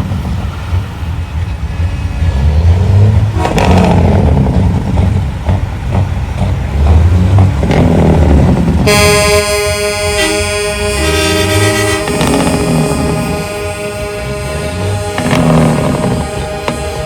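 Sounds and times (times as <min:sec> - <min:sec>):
diesel trucks driving past: 0:00.0 - 0:17.0
truck air horn: 0:08.8 - 0:17.0.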